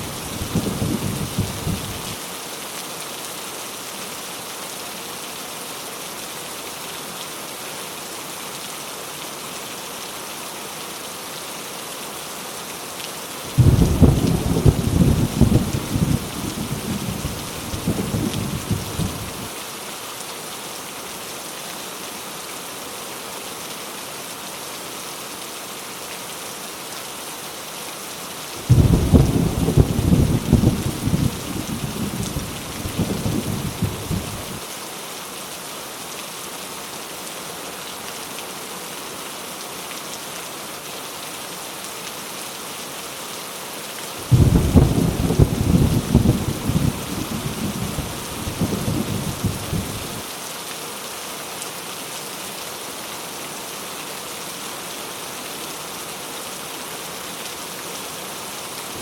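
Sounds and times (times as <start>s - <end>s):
heavy rain falling: 0.0s - 59.0s
deep rolling thunder: 0.4s - 2.0s, 13.6s - 19.4s, 28.7s - 34.6s, 44.2s - 50.2s.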